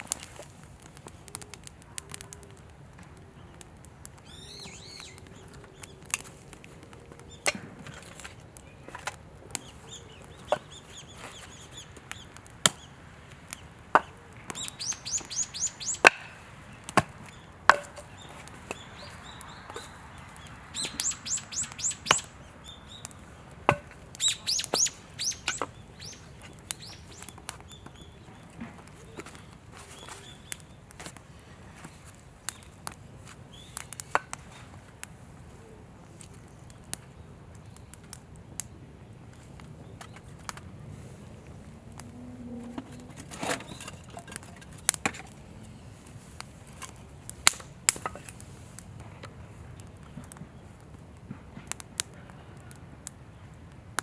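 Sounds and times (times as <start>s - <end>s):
wood fire crackling: 0.0s - 54.0s
small bird singing: 3.3s - 6.1s, 7.0s - 30.9s, 33.5s - 34.0s.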